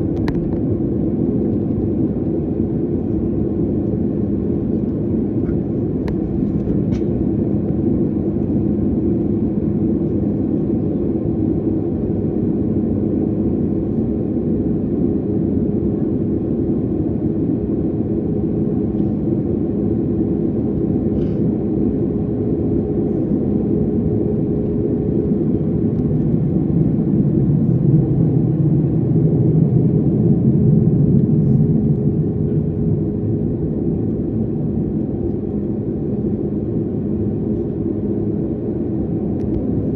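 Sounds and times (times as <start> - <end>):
jet engines and airflow rumble: 0.0 - 39.9
low hum: 17.6 - 39.9.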